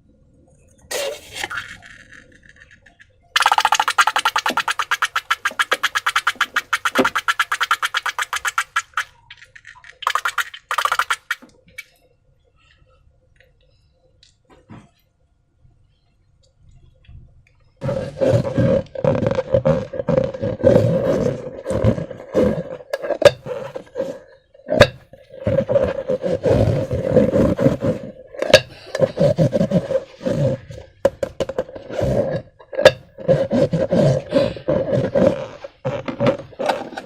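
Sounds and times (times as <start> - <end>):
squeaky rubbing of balloons: 0.9 - 9.1, 17.8 - 30.9, 31.5 - 37.0
wet squishing: 3.4 - 9.2, 9.9 - 11.4.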